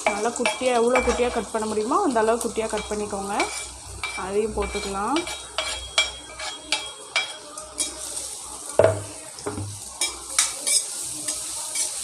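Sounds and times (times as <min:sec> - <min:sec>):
oil sizzling: 0:00.0 - 0:12.0
utensil scraping and knocking pan: 0:02.8 - 0:08.0.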